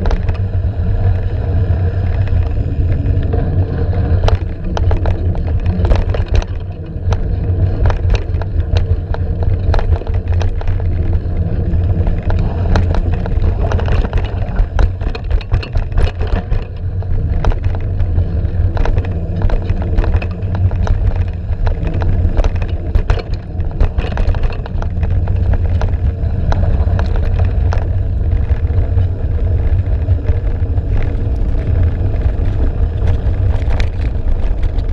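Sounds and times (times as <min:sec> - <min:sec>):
vehicle engine running: 0:00.0 - 0:34.9
vehicle knocks and rattles: 0:02.1 - 0:34.9.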